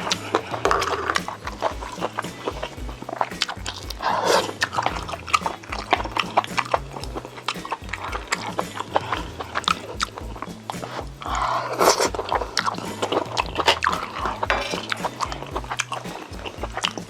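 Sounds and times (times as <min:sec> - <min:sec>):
chewing and lip-smacking: 0:00.0 - 0:17.0.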